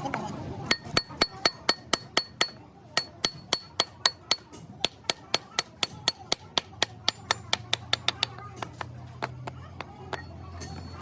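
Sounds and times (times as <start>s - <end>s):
hammer striking metal: 0.7s - 8.4s.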